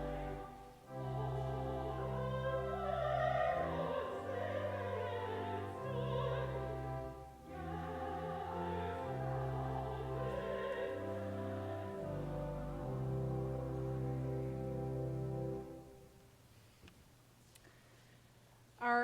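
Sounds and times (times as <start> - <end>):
person singing in classical style: 0.0 - 16.0
organ notes: 0.0 - 16.2.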